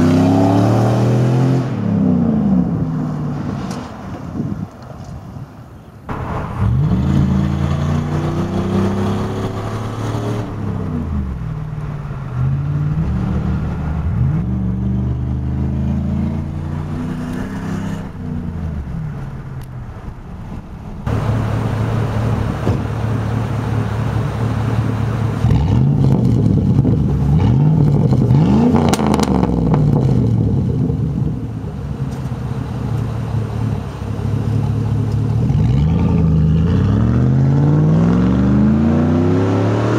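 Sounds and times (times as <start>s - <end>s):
truck engine revving: 0.0s - 3.9s, 6.1s - 31.5s, 33.0s - 39.9s
engine idling: 18.4s - 25.5s.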